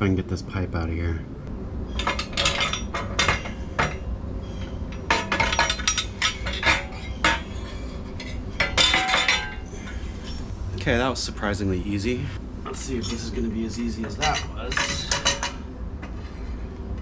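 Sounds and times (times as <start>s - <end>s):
metallic clinks and knocks: 1.9s - 10.5s.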